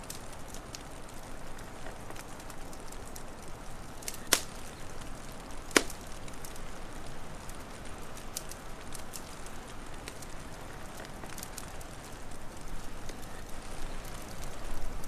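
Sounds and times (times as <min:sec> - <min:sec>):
soft hiss: 0:00.0 - 0:15.0
wood fire crackling: 0:00.0 - 0:15.0
loud sharp fire pops: 0:04.0 - 0:06.6.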